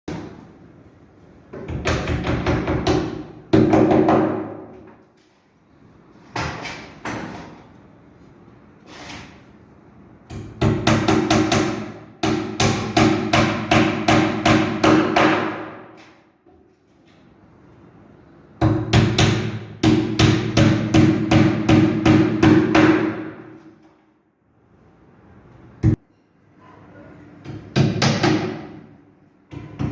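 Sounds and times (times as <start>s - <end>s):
hammer striking wood: 10.3s - 15.9s, 18.6s - 23.4s, 27.4s - 28.8s.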